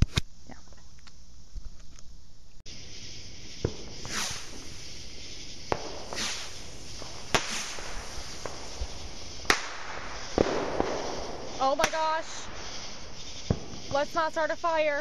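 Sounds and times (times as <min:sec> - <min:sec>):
fireworks bangs: 0:02.7 - 0:15.0
hissing firework whooshes: 0:02.7 - 0:15.0
small firework pops: 0:03.6 - 0:04.9, 0:05.6 - 0:14.1.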